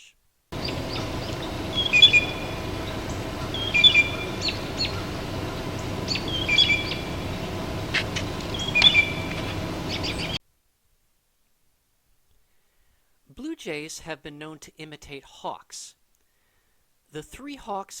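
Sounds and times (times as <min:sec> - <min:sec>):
steady background noise: 0:00.3 - 0:10.4
blue jay call: 0:00.6 - 0:10.4.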